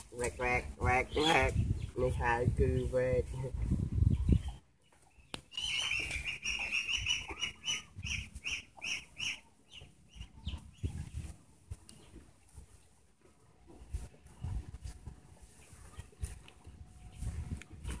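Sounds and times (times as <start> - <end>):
bird calling: 5.2 - 10.8.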